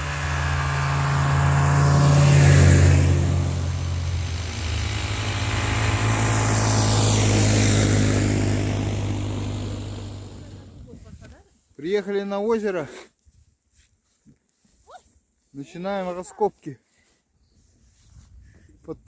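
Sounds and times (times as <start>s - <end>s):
snowmobile engine running: 0.0s - 11.2s.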